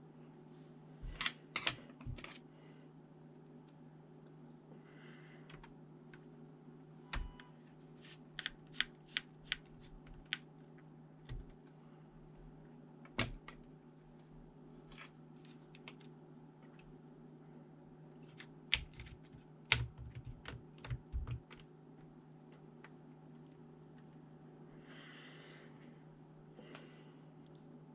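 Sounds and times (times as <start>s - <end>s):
steady low hum: 0.0s - 27.9s
laptop clicks and taps: 8.4s - 10.5s, 18.4s - 21.7s.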